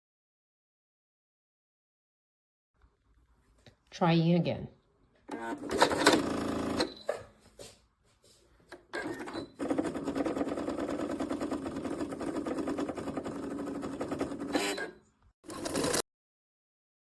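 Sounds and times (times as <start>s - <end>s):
sewing machine stitching: 5.3s - 7.2s, 8.8s - 16.0s.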